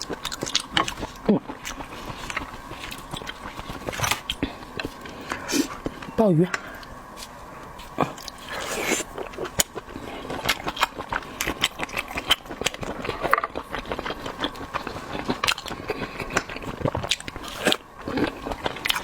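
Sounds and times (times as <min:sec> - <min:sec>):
wet chewing clicks and smacks: 0:00.0 - 0:05.1, 0:08.1 - 0:19.0.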